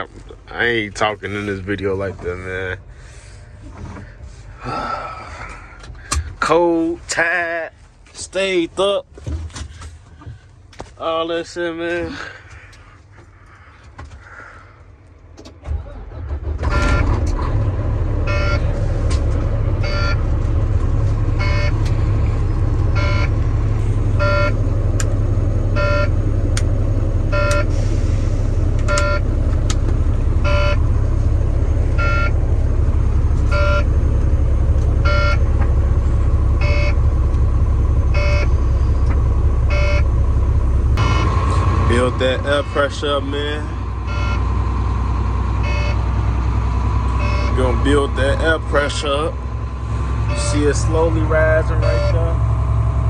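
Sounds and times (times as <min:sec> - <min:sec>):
truck diesel engine idling: 0:00.0 - 0:07.8, 0:09.7 - 0:53.0
warning beeps: 0:18.3 - 0:18.8, 0:19.8 - 0:20.3, 0:21.4 - 0:21.8, 0:23.0 - 0:23.4, 0:24.2 - 0:24.6, 0:25.8 - 0:26.2, 0:28.9 - 0:29.3, 0:30.4 - 0:30.9, 0:31.9 - 0:32.4, 0:33.5 - 0:33.9, 0:35.0 - 0:35.5, 0:36.6 - 0:37.0, 0:38.1 - 0:38.6, 0:39.7 - 0:40.1, 0:41.0 - 0:41.4, 0:44.1 - 0:44.5, 0:45.6 - 0:46.0, 0:47.2 - 0:47.6, 0:50.2 - 0:52.4.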